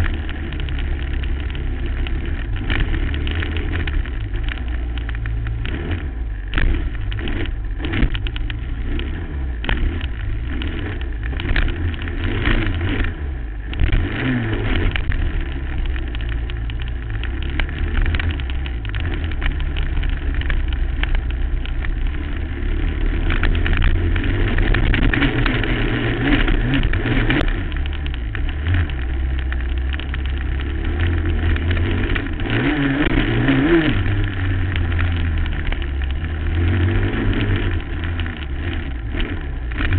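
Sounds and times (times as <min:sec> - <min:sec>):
quad bike engine revving: 0:00.0 - 0:39.9.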